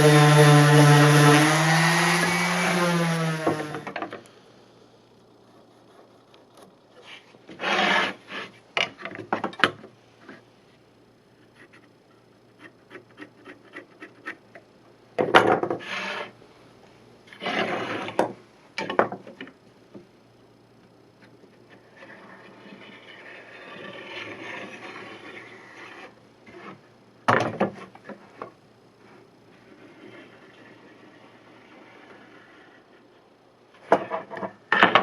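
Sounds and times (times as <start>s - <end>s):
wood scraped by hand: 7.0s - 8.6s, 15.8s - 16.3s, 17.3s - 18.2s, 21.7s - 26.8s.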